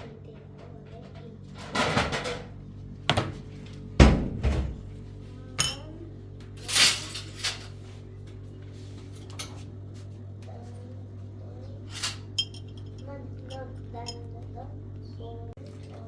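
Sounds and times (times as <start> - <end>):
pots and dishes clattering: 1.5 - 3.4.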